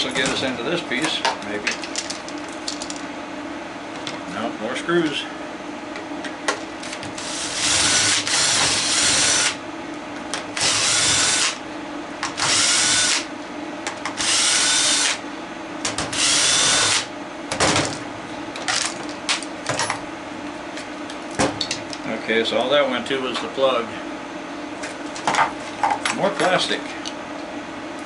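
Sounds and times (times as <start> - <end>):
power drill driving screws: 7.2 - 9.6, 10.6 - 11.6, 12.4 - 13.2, 14.2 - 15.2, 16.2 - 17.1.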